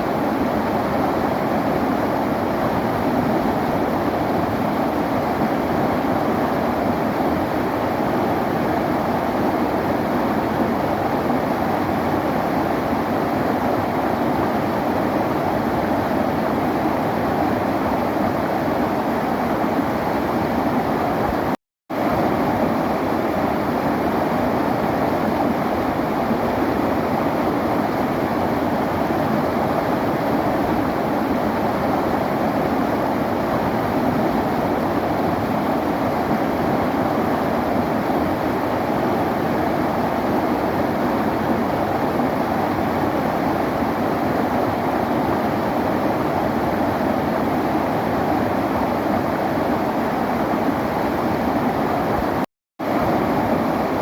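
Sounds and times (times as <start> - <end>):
river water rushing: 22.0 - 54.0.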